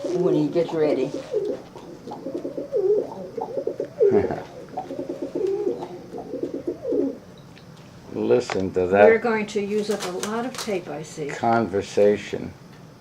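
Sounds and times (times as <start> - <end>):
pigeon cooing: 0.0 - 7.4.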